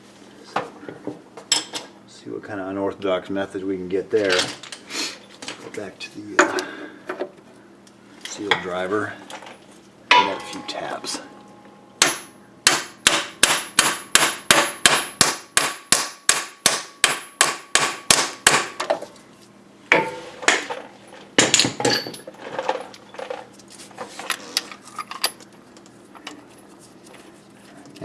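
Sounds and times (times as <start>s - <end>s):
metallic clanks: 10.1s - 11.2s
hammer striking metal: 10.1s - 11.3s, 12.0s - 18.8s, 19.9s - 20.7s.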